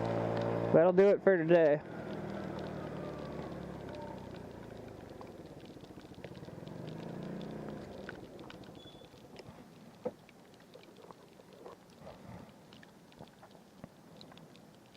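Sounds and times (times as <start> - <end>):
vehicle engine running: 0.0 - 9.2
small clicks: 1.9 - 14.9.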